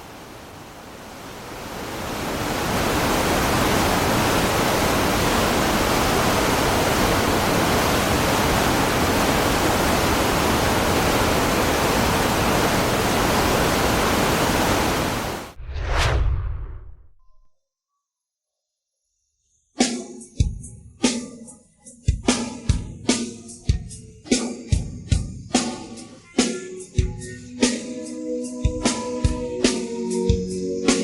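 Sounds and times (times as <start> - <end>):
waterfall roaring: 0.0 - 15.6.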